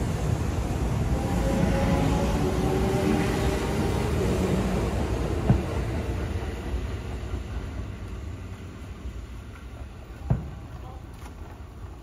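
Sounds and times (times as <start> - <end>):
electric train rumble: 0.0 - 12.0.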